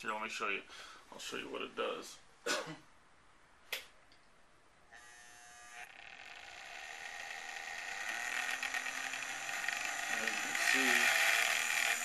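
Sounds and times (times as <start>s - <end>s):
small electric motor buzzing: 4.9s - 12.0s.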